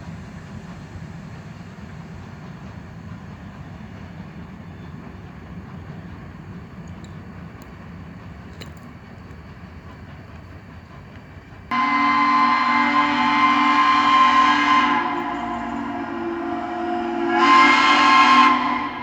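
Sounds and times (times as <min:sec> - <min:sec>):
loud multi-tone horn: 0:11.7 - 0:19.0.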